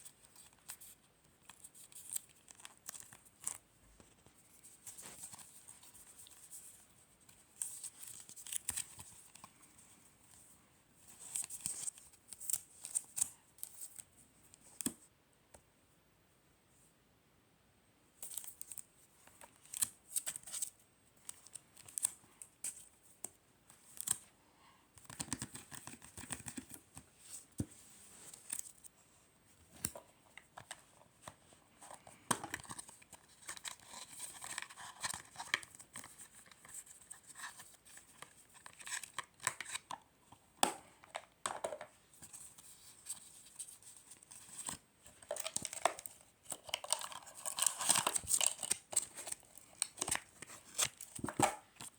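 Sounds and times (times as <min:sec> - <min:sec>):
packaging being torn and crinkled: 0:44.6 - 0:51.4.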